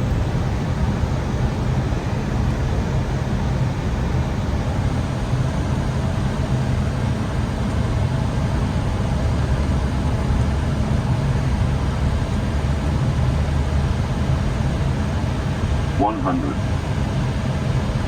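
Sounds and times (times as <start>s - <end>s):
low engine rumble: 15.8s - 17.2s.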